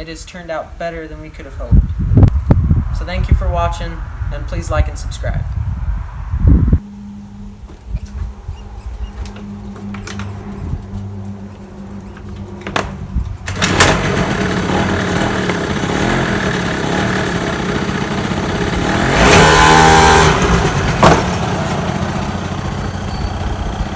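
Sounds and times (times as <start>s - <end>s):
two-stroke engine revving: 13.4s - 23.9s.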